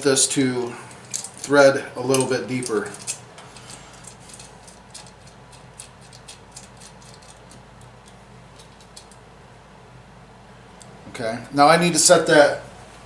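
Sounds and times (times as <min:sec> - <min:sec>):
low steady hum: 0:00.0 - 0:13.0
metal bolt and washers clicking: 0:00.6 - 0:09.2.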